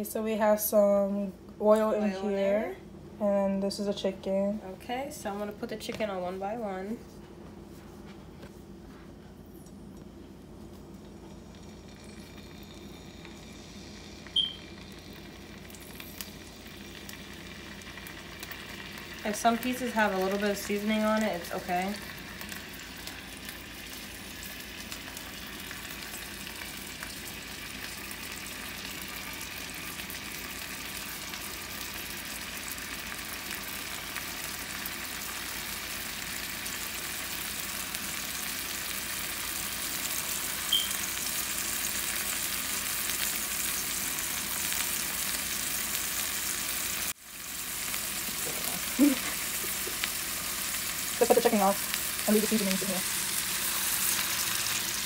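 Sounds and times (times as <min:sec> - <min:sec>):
chicken sizzling in oil: 0:11.3 - 0:55.0.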